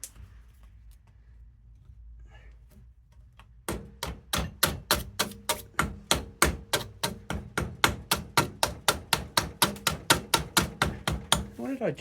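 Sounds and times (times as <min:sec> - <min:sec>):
hammer striking metal: 0:03.7 - 0:11.6.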